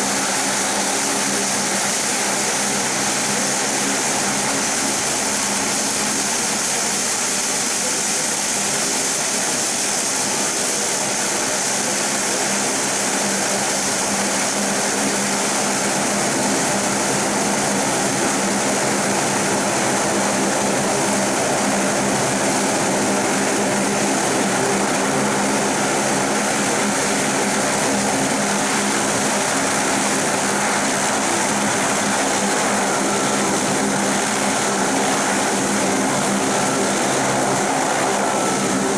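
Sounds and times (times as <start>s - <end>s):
turboprop engines droning: 10.2s - 38.9s.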